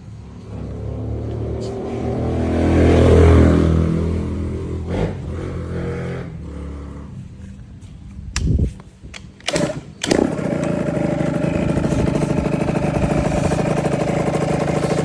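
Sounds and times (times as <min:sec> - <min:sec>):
small two-stroke engine running: 0:09.5 - 0:15.0.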